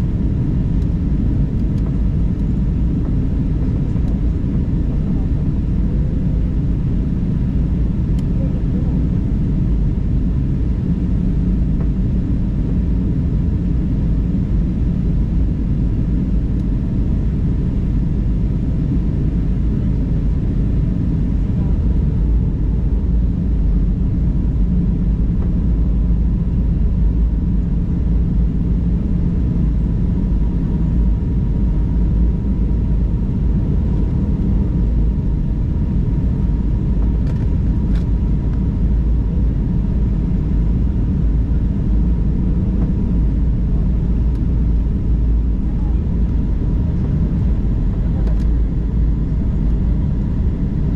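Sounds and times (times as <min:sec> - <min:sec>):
airliner engine rumble in cabin: 0:00.0 - 0:50.9
faint steady whine: 0:00.0 - 0:50.9.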